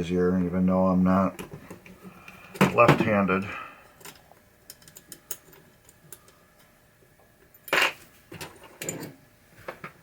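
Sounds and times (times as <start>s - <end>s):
small metal parts clicking: 4.0s - 6.7s.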